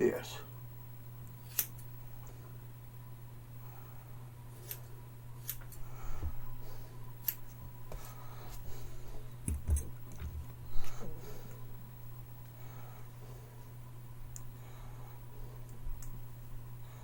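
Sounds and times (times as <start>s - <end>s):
low electrical hum: 0.0s - 17.0s
scissors snipping hair: 1.4s - 1.9s, 4.6s - 5.8s, 7.2s - 7.6s.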